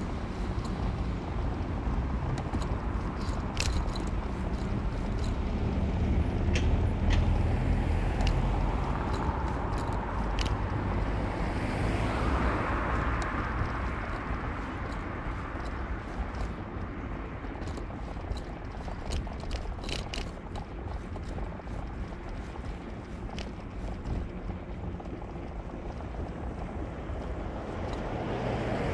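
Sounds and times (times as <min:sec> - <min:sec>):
traffic rumble: 0:00.0 - 0:28.9
vehicle passing with hiss: 0:10.8 - 0:14.5, 0:27.8 - 0:28.9.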